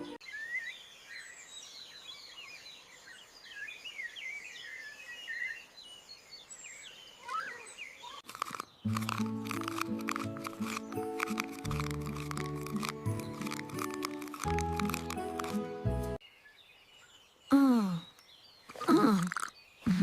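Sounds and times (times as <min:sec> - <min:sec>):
small birds chirping: 0:00.0 - 0:20.0
music: 0:08.9 - 0:16.2.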